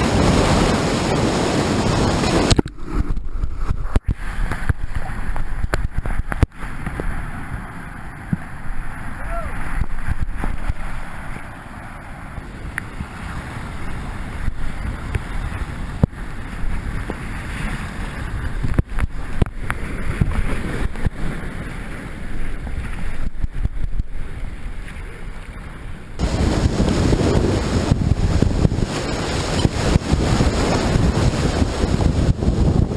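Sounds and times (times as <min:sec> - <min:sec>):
river whitewater rushing: 0:00.0 - 0:02.7, 0:26.2 - 0:32.9
wind buffeting microphone: 0:00.0 - 0:32.9.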